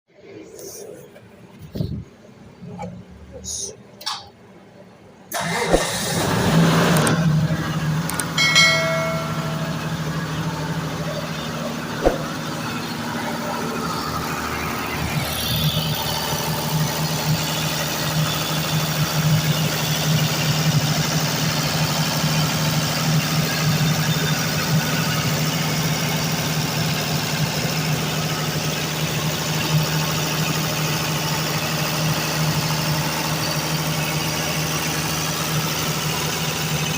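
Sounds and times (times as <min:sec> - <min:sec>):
diesel generator engine idling: 0:00.6 - 0:36.9
high whine: 0:08.1 - 0:13.8.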